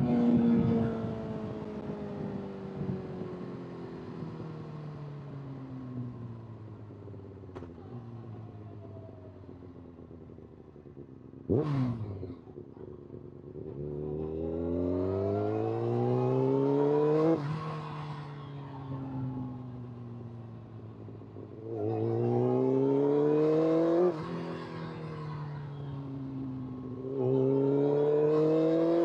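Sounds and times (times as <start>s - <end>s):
motorcycle engine revving: 10.9s - 12.6s, 19.0s - 29.0s.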